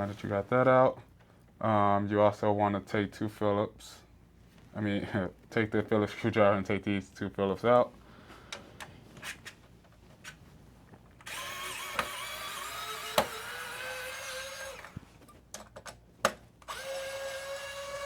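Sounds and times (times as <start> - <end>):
electric screwdriver whining: 11.2 - 15.0, 16.6 - 18.0.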